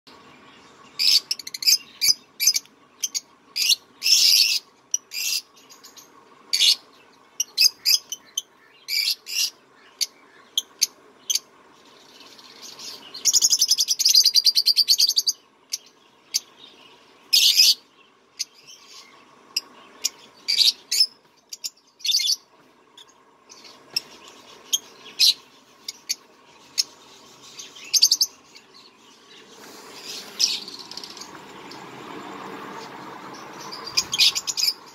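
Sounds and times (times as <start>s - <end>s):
small birds chirping: 0.1s - 34.9s
buzzy bird chattering: 29.3s - 31.9s, 32.8s - 34.9s.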